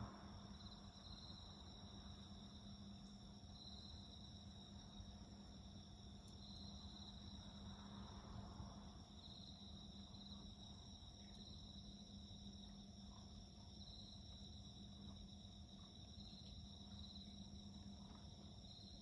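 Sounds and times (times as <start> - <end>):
crickets and insects chirring: 0.0 - 19.0
small wood fire crackles: 2.2 - 8.5.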